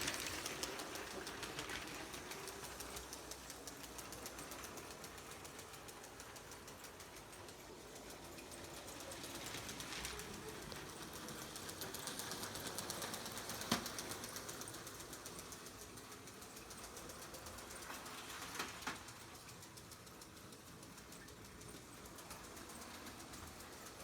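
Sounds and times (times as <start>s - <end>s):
toy train wheels clicking: 0.0s - 24.0s.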